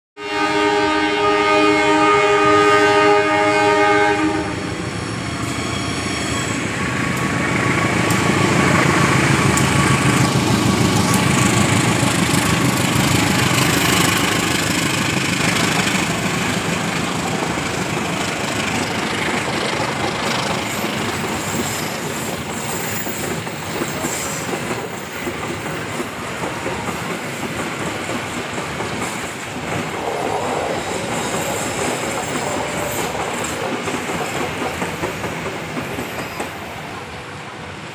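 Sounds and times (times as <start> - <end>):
passenger train passing: 0.2 - 37.9.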